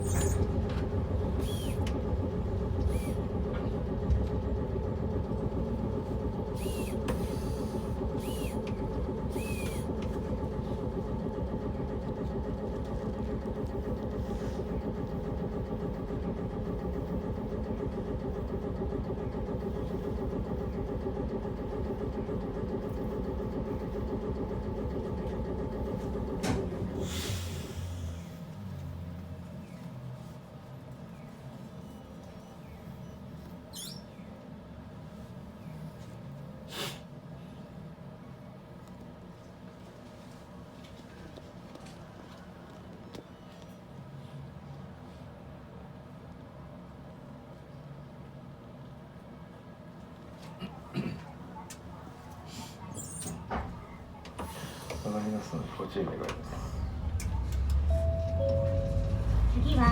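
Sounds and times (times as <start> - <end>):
tram electrical hum and rumble: 0.0 - 59.9
brief hiss: 36.7 - 37.1.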